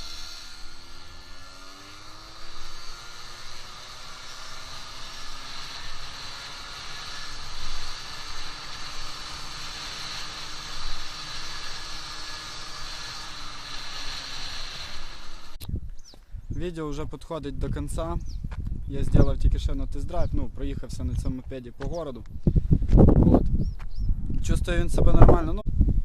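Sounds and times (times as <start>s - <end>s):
scooter engine running: 0.0s - 15.6s
steady hiss: 2.4s - 15.6s.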